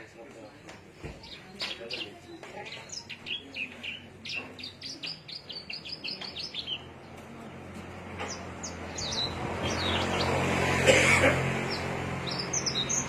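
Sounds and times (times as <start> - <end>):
songbird chirping: 0.0 - 10.6, 11.6 - 13.0.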